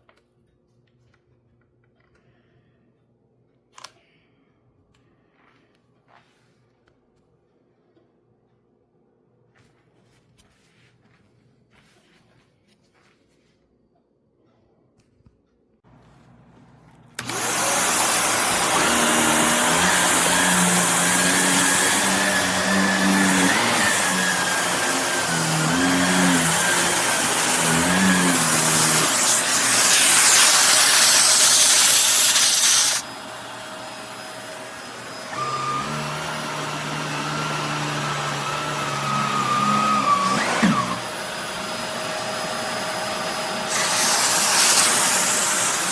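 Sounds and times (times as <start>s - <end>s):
upright vacuum cleaner running: 17.1s - 45.9s.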